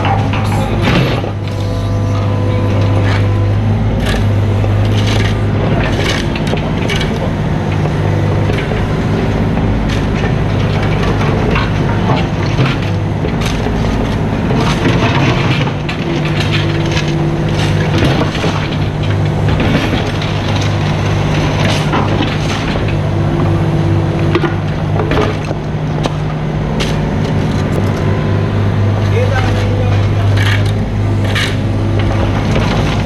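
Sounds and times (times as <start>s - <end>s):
clanks and scrapes: 0.0s - 3.4s, 4.0s - 8.9s, 9.9s - 23.0s, 29.0s - 33.0s
excavator diesel engine running: 0.0s - 33.0s.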